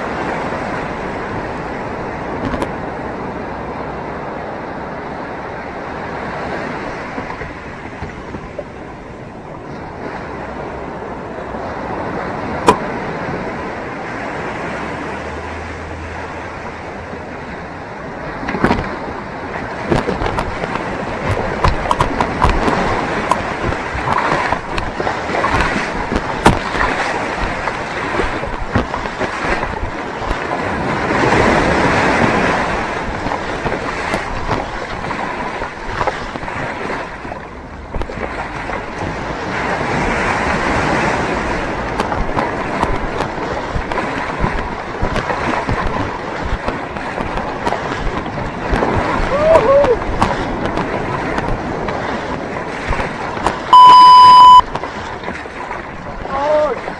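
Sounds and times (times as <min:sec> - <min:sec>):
surf breaking and water rushing: 0:00.0 - 0:56.9.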